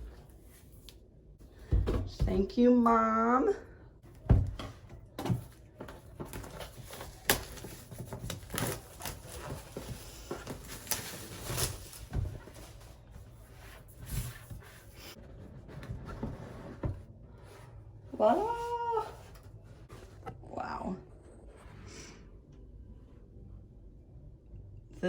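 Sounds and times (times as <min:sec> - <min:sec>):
packaging rustling: 0:05.4 - 0:14.9.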